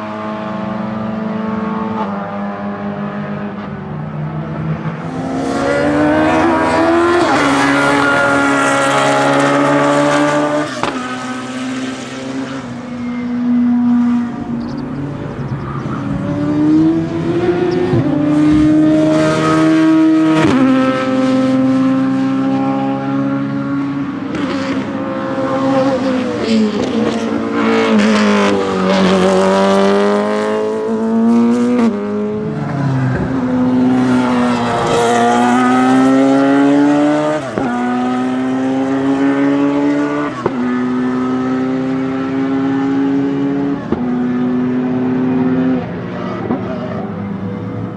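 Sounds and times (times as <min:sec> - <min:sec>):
engine crackles on downshifts: 0:13.8 - 0:21.2
race car engine shifting gears: 0:14.1 - 0:19.6.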